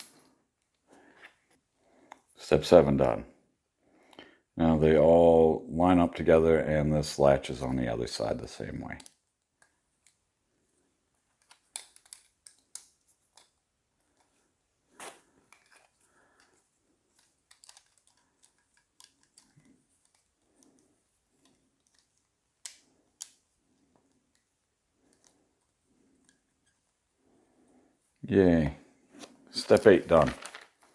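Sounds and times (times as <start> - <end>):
soft fiddling noise: 7.6 - 30.9
plastic pieces clicking together: 11.4 - 14.3, 15.5 - 25.4, 29.6 - 30.9.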